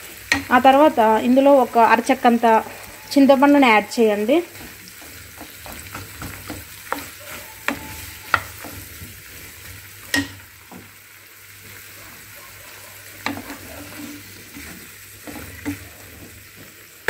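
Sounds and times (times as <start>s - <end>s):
vegetables sizzling in oil: 0.0s - 17.0s
wooden spatula knocking on pan: 4.5s - 9.3s, 10.0s - 11.0s.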